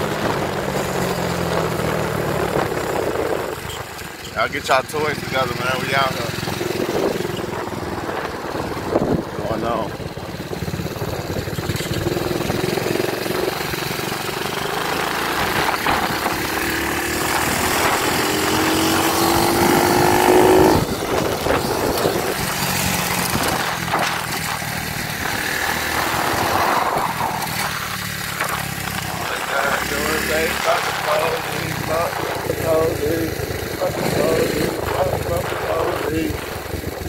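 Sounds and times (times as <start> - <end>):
dirt bike engine running: 0.0 - 37.0.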